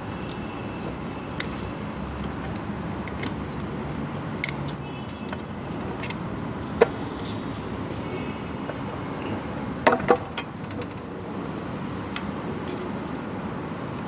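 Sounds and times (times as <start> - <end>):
metallic clicks of tools: 0.0 - 7.5, 12.1 - 13.2.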